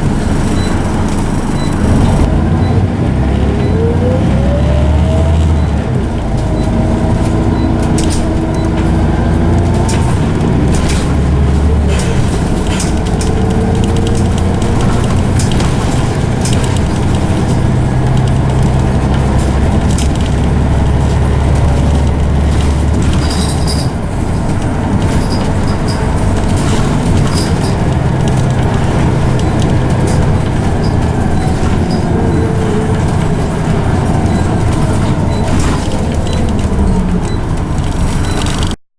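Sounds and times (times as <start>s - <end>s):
bus engine drone: 0.0s - 38.8s
gearbox whine: 0.0s - 38.8s
interior rattles clicking: 5.6s - 38.8s.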